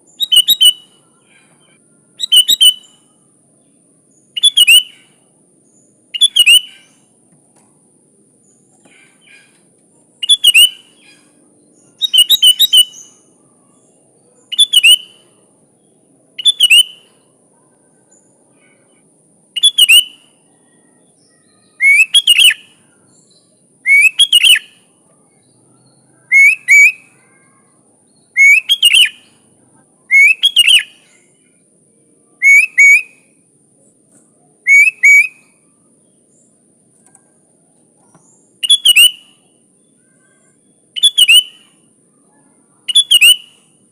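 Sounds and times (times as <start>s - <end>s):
bulbul singing whistled phrases: 0.0s - 3.2s, 4.1s - 7.2s, 10.2s - 17.3s, 19.5s - 31.7s, 32.4s - 33.4s, 34.6s - 36.6s, 38.0s - 43.9s.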